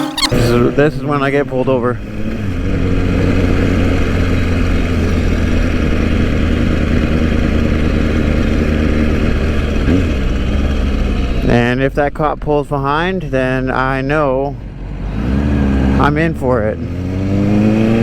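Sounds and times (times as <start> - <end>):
motorcycle engine humming: 0.0 - 18.0.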